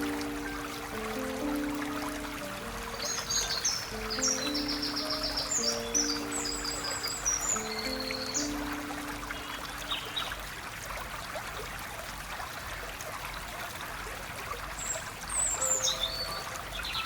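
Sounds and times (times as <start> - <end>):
bird chirps: 0.0 - 10.4, 15.3 - 17.0
stream water trickling: 0.0 - 17.0.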